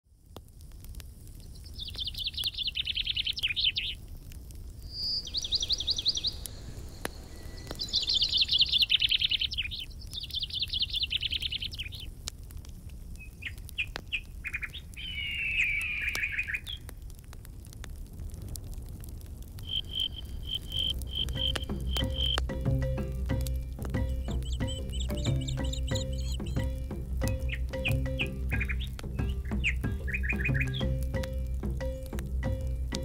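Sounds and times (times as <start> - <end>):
songbirds singing trilled phrases: 4.9 - 12.1, 19.6 - 33.0
bird chattering: 19.6 - 23.1, 23.9 - 31.0.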